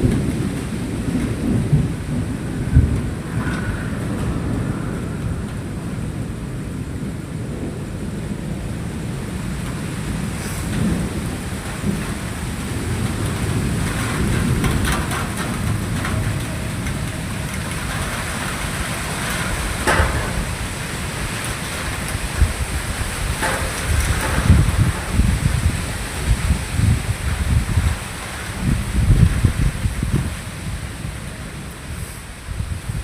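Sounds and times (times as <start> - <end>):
steady rain: 0.0 - 33.0
thunder rumbling: 0.0 - 33.0.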